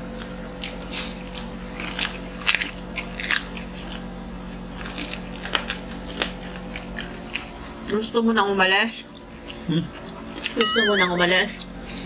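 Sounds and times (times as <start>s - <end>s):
chewing crispy food: 0.0s - 8.1s, 8.9s - 10.6s.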